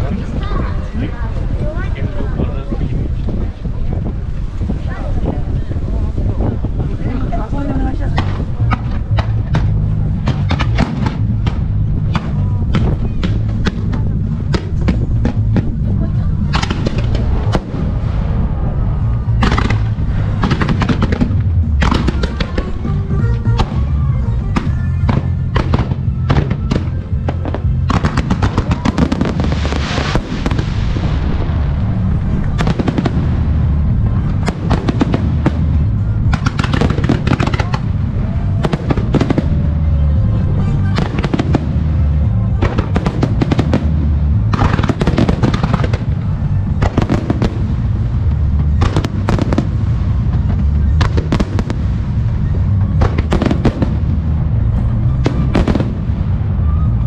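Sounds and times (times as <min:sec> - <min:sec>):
fireworks crackling: 0:08.0 - 0:57.0
music over loudspeakers: 0:19.0 - 0:30.4.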